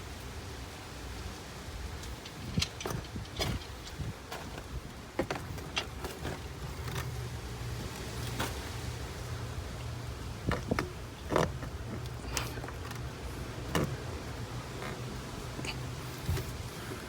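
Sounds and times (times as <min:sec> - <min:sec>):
tools and plastic parts clicking: 0:02.0 - 0:07.1.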